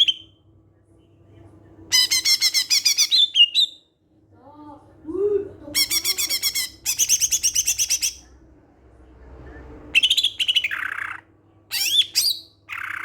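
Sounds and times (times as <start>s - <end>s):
bird singing: 1.9s - 3.9s, 9.9s - 13.0s.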